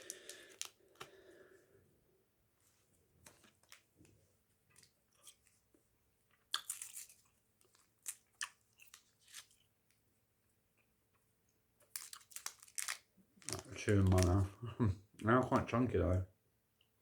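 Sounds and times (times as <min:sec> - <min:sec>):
chewing bubble gum: 0:06.4 - 0:09.0.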